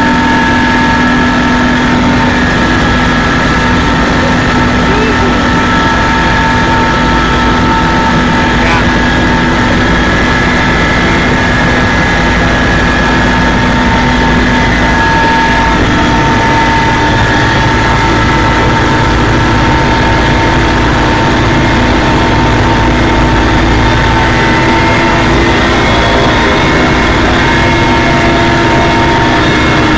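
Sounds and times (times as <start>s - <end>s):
helicopter engine and rotor noise: 0.0s - 29.9s
high whine: 0.0s - 29.9s.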